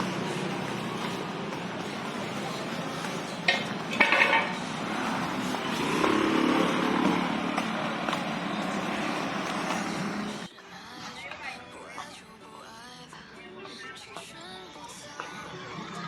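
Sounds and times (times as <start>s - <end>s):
vehicle engine noise: 0.0s - 10.5s.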